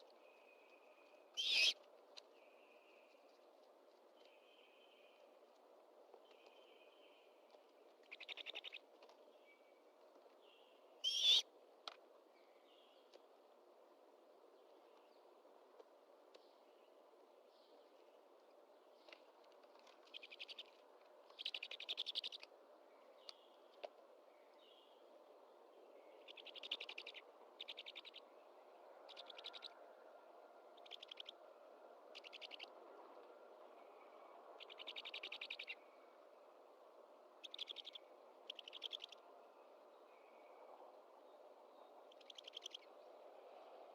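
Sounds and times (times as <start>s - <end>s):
faint background hiss: 0.0s - 43.9s
owl nestlings raspy begging calls: 1.4s - 1.8s, 11.0s - 11.4s.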